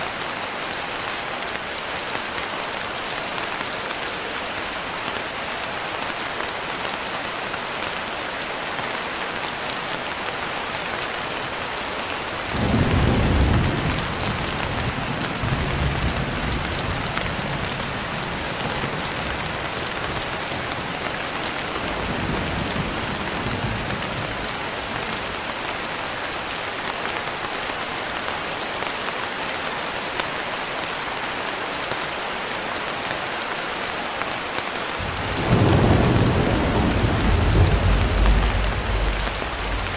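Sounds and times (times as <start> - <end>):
heavy rain falling: 0.0 - 39.9
thunder rumbling: 12.6 - 19.7, 35.0 - 39.9.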